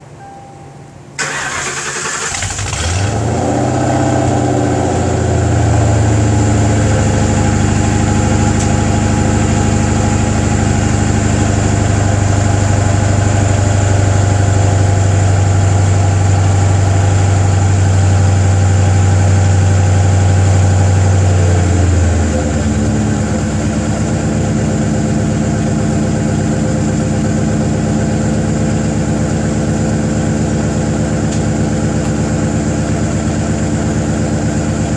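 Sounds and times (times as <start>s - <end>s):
car engine cranking and starting: 1.2s - 13.5s
car engine idling: 1.2s - 34.9s.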